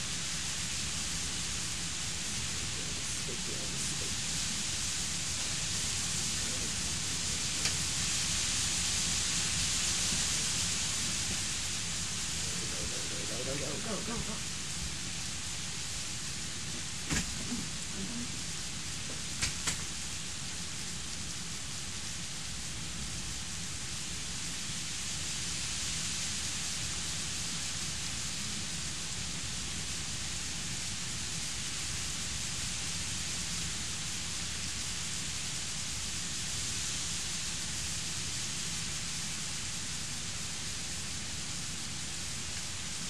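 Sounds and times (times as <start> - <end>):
heavy rain falling: 0.0 - 43.0
sharp click: 19.4 - 19.9.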